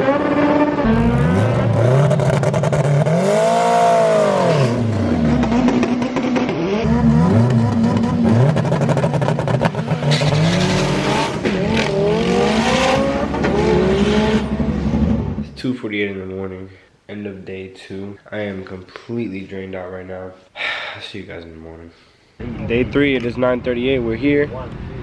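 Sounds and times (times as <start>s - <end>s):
racing car engines revving: 0.0s - 15.4s.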